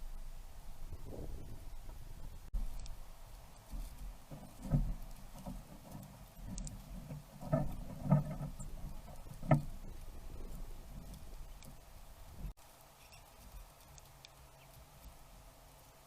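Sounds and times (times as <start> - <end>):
dull knocks and taps: 3.8 - 9.9.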